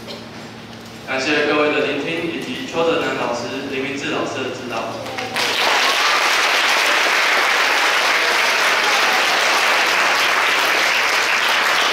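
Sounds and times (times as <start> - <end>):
audience applauding: 5.1 - 11.9.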